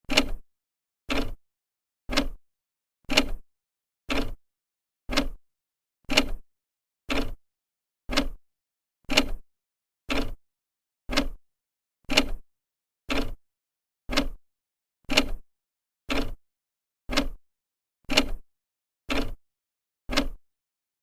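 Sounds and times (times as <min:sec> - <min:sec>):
clock ticking: 0:01.1 - 0:01.4, 0:02.1 - 0:02.4, 0:04.1 - 0:04.4, 0:05.1 - 0:05.4, 0:07.1 - 0:07.4, 0:08.1 - 0:08.4, 0:10.1 - 0:10.4, 0:11.1 - 0:11.4, 0:13.1 - 0:13.4, 0:14.1 - 0:14.4, 0:16.1 - 0:16.4, 0:17.1 - 0:17.4, 0:19.1 - 0:19.4, 0:20.1 - 0:20.4.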